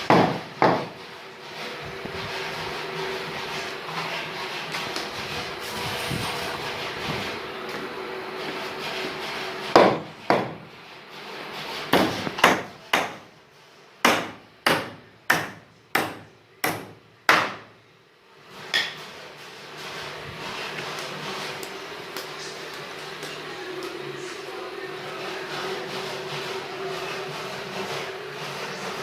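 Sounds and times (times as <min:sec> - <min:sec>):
hammer striking wood: 0:00.0 - 0:01.0, 0:09.7 - 0:10.6, 0:11.9 - 0:13.3, 0:14.0 - 0:17.7.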